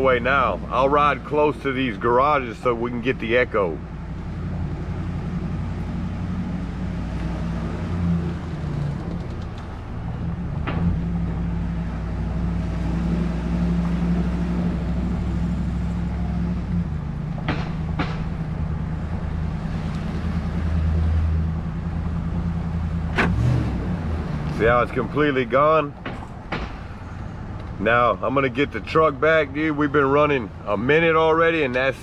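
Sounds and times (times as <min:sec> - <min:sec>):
truck engine running: 0:00.0 - 0:32.0.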